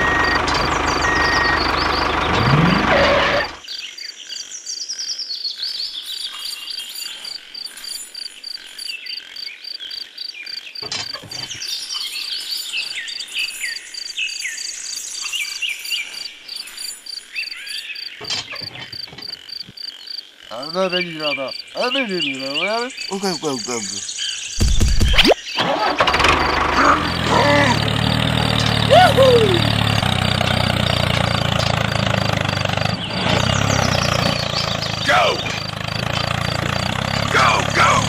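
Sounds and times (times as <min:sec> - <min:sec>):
tractor engine running: 0:00.0 - 0:03.6, 0:24.6 - 0:38.0
birds chirping: 0:00.0 - 0:38.0.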